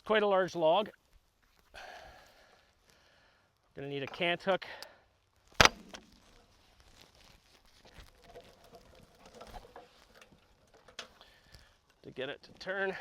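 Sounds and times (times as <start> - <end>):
sharp knock: 5.6 - 6.1
faint ticks and shuffling: 6.1 - 13.0.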